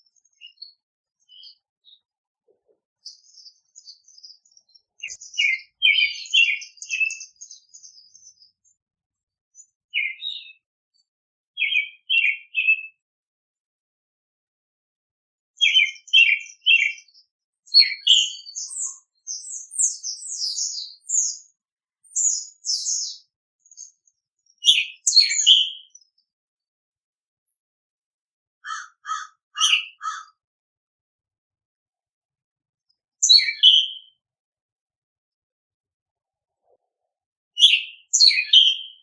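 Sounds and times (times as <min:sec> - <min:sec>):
songbirds chirping: 0:00.0 - 0:13.0, 0:15.6 - 0:26.4, 0:28.6 - 0:30.4, 0:32.8 - 0:34.2, 0:36.2 - 0:39.0.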